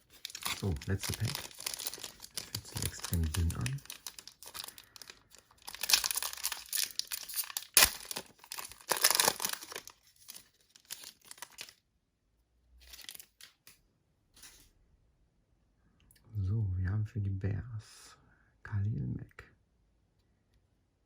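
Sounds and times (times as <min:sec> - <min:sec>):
wrapper being torn open: 0:00.0 - 0:11.8, 0:12.8 - 0:13.7.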